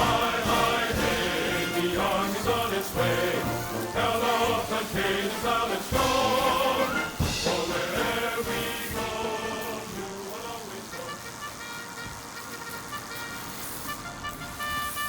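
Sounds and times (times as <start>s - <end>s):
background music with choir singing: 0.0s - 11.5s.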